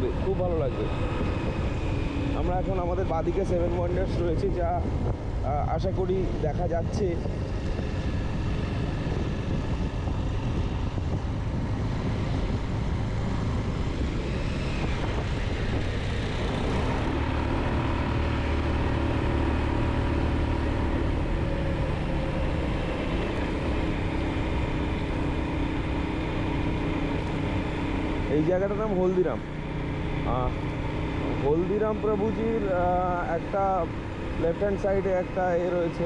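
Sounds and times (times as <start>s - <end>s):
wind on microphone: 0.0s - 19.9s
motorcycle engine running: 0.0s - 36.0s.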